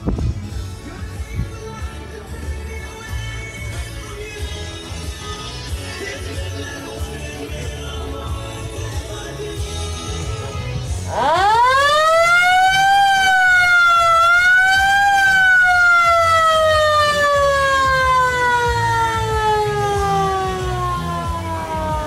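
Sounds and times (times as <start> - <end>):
siren wailing: 11.1 - 22.0.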